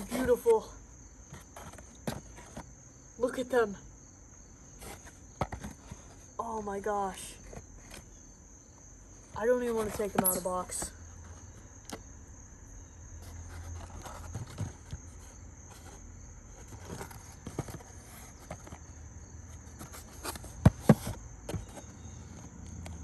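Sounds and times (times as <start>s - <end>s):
toy packaging rustling: 9.4s - 10.9s.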